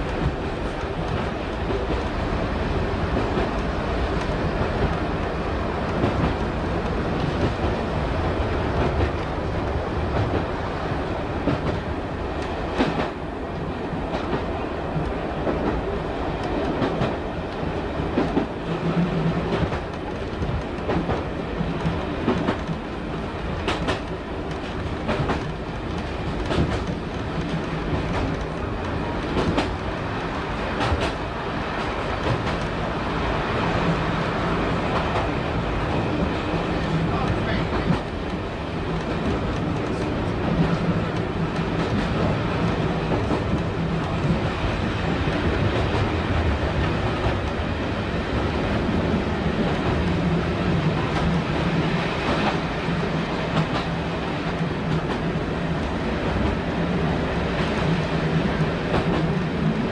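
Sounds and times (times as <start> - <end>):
train engine and running noise: 0.0 - 59.9
wheels clicking over rail joints: 14.1 - 32.8.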